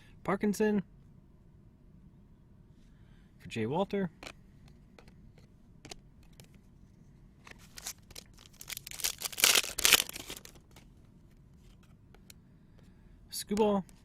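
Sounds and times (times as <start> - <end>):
wrapper tearing and rustling: 7.6 - 10.8.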